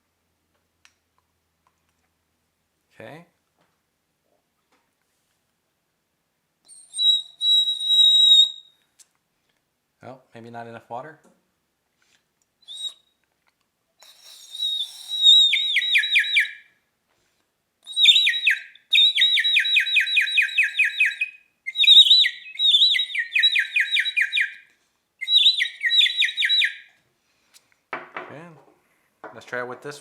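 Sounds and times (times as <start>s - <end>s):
bird-call whistle trilling: 6.7s - 8.8s, 12.6s - 13.2s, 14.0s - 16.7s, 17.9s - 26.9s.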